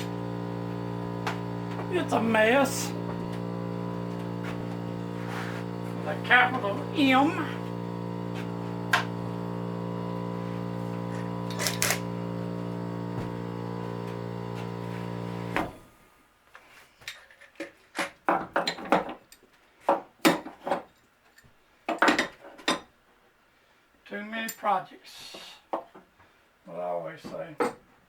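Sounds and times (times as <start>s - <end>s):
steady hum: 0.0s - 16.2s
knocks and clatters of wood: 17.0s - 20.9s.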